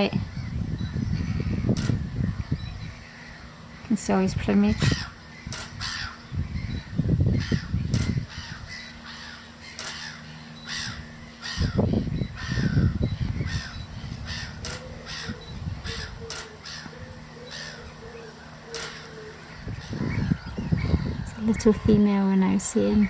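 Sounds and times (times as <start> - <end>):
low rumbling bursts: 0.0 - 23.0
bird short calls: 4.7 - 21.3.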